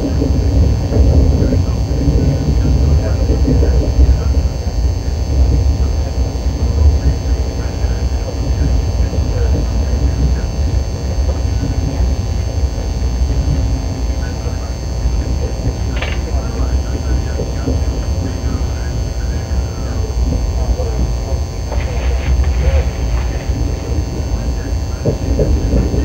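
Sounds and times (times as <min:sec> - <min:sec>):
hum: 0:00.0 - 0:26.0.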